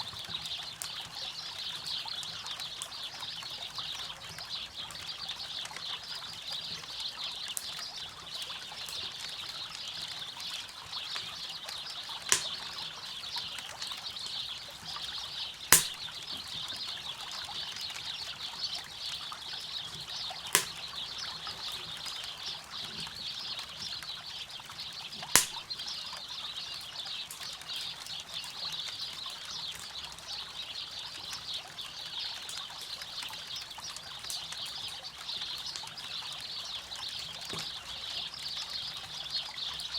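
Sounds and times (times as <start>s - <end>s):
fire popping: 12.3s - 12.6s, 15.7s - 16.2s, 20.6s - 20.8s, 25.4s - 25.8s
campfire crackling: 12.3s - 12.7s, 15.6s - 16.3s, 20.6s - 20.9s, 25.4s - 25.8s.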